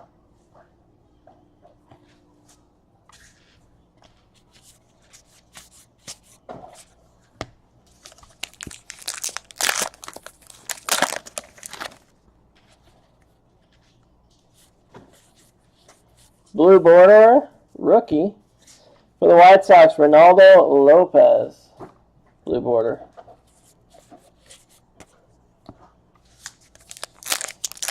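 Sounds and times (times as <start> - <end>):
cards being handled: 3.2 - 7.0, 7.9 - 16.1, 23.5 - 27.9
foil wrapper crinkling and tearing: 7.9 - 12.1, 26.4 - 27.9.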